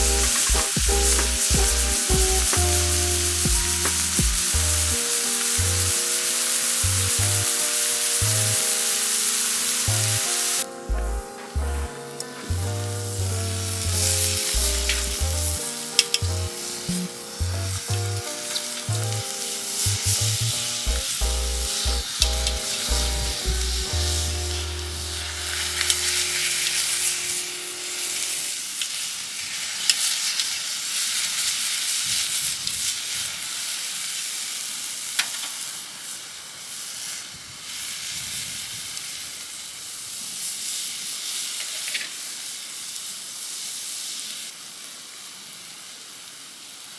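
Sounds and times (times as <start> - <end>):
background music with bass: 0.0 - 6.0, 6.8 - 7.6, 8.2 - 8.6, 9.9 - 27.4
food sizzling in a pan: 0.0 - 46.9.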